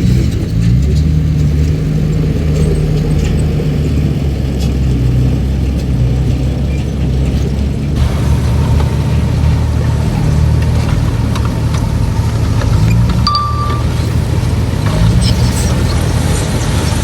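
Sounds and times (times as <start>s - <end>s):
bulldozer diesel engine running: 0.0s - 17.0s
faint steady whine: 8.0s - 14.6s.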